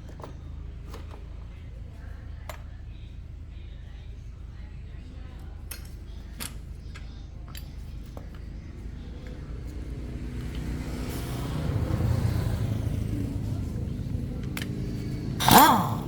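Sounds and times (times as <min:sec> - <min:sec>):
motorcycle engine running: 0:07.6 - 0:16.0.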